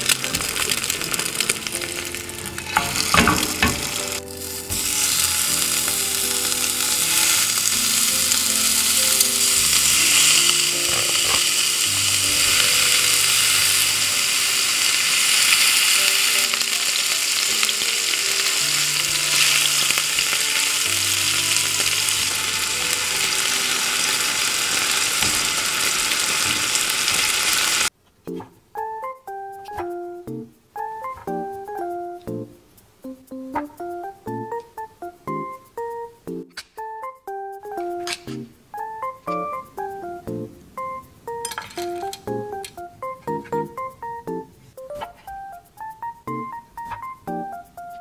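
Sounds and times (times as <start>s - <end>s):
meat frying in a hot pan: 0.0s - 27.9s.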